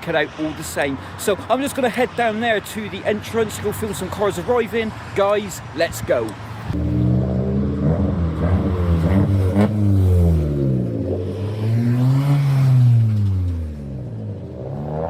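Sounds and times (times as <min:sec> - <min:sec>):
car engine revving: 0:06.6 - 0:15.0.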